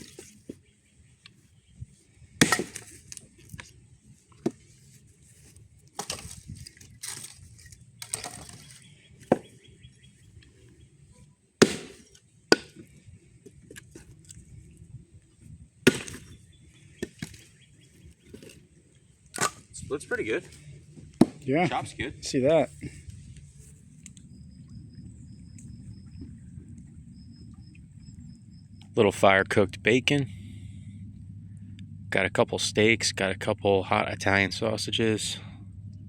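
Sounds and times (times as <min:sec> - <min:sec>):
wood cracking: 0:00.0 - 0:00.5, 0:02.4 - 0:03.6, 0:05.8 - 0:09.6, 0:11.6 - 0:13.0, 0:15.8 - 0:16.4, 0:17.0 - 0:18.6, 0:20.4 - 0:21.5
axe chopping wood: 0:02.4 - 0:03.0, 0:11.6 - 0:12.9, 0:15.9 - 0:16.4, 0:17.0 - 0:17.4, 0:21.2 - 0:21.5.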